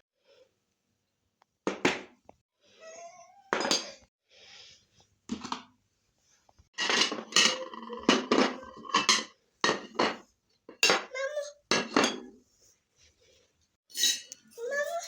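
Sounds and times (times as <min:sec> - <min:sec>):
dishes and cutlery clinking: 0:03.5 - 0:04.1, 0:06.8 - 0:11.1, 0:11.7 - 0:12.4, 0:13.9 - 0:15.0.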